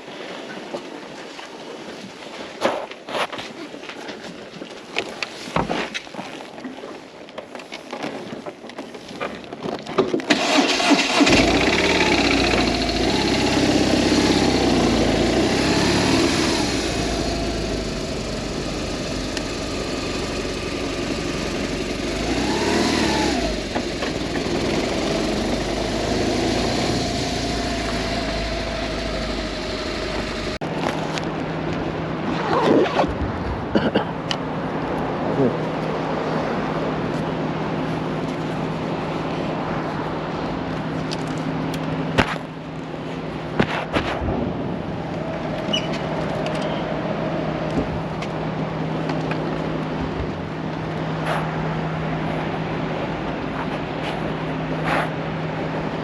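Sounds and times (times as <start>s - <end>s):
motorcycle engine starting and revving: 10.2s - 31.2s.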